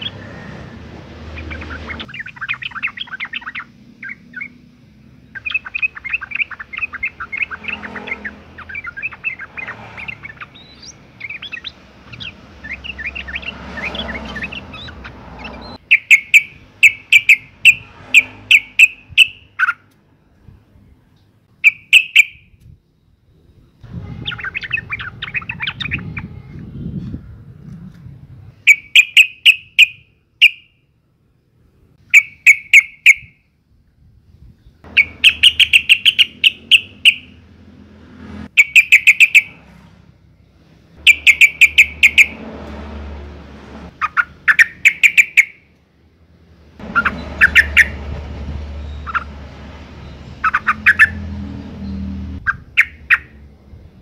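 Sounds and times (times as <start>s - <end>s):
bulbul calling: 0.0s - 19.9s, 21.6s - 22.6s, 24.1s - 26.4s, 28.6s - 30.8s, 32.0s - 33.4s, 34.8s - 37.7s, 38.5s - 39.6s, 40.9s - 42.4s, 43.9s - 45.8s, 46.8s - 48.1s, 48.9s - 49.4s, 50.0s - 53.5s.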